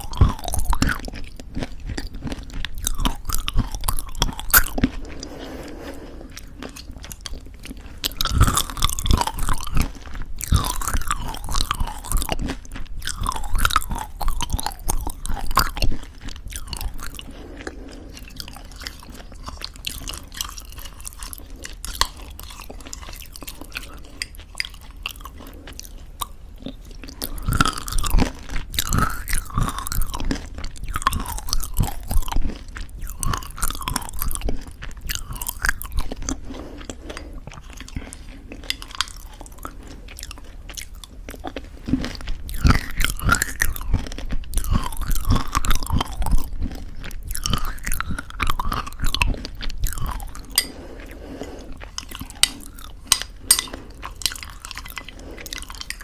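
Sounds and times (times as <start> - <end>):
chewing crunchy granola: 0.0 - 56.0
wet mouth sounds: 0.0 - 56.0.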